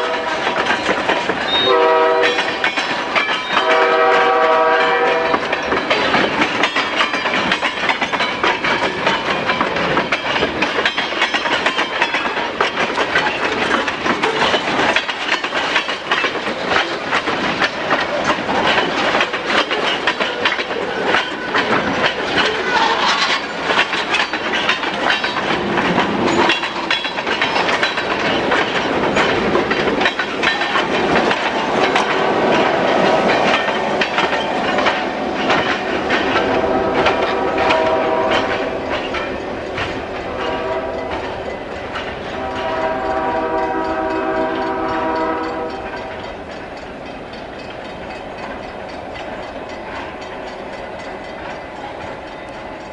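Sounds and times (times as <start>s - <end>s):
train horn blasts: 0.0s - 0.6s, 1.5s - 2.6s, 3.5s - 5.6s, 22.6s - 23.3s, 36.4s - 38.8s, 40.3s - 41.4s, 42.3s - 46.3s
train wheels clicking over rail joints: 0.0s - 52.9s.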